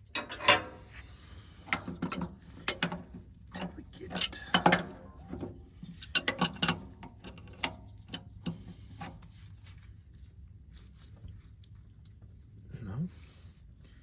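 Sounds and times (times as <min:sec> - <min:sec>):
wrenches clinking against metal: 0:00.0 - 0:01.0, 0:01.6 - 0:08.6.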